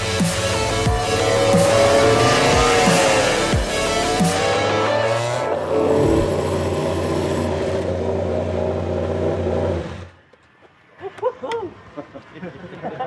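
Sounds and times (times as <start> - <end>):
racing engine running: 0.0 - 10.2.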